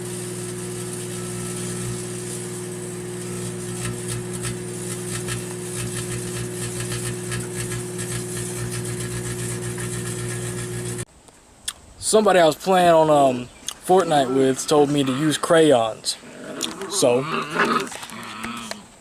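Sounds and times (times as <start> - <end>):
microwave oven humming: 0.0 - 11.1.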